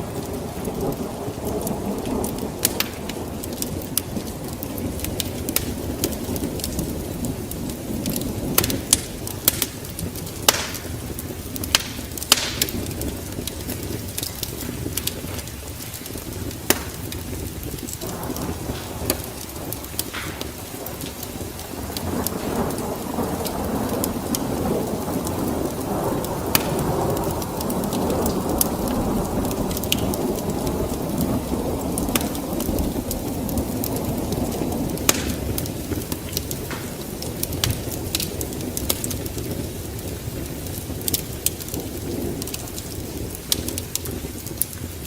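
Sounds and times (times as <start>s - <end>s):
rolling thunder: 0.0s - 45.0s
steady rain: 0.0s - 45.0s
sharp pops: 10.4s - 11.0s, 11.6s - 13.1s, 16.6s - 22.8s, 35.1s - 35.6s, 36.3s - 38.3s.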